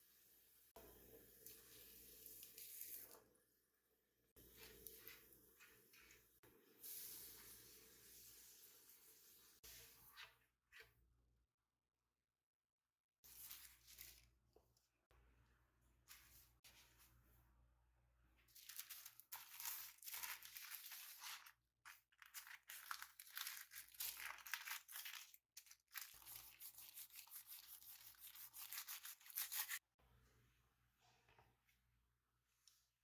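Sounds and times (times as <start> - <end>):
food packaging crinkling and tearing: 18.5 - 29.8.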